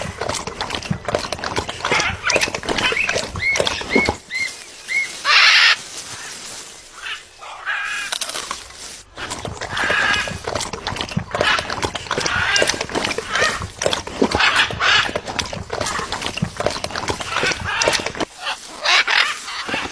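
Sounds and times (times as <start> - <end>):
macaw harsh squawk: 1.9 - 6.4, 17.3 - 19.9
soft macaw calls: 4.3 - 6.3, 18.4 - 19.8.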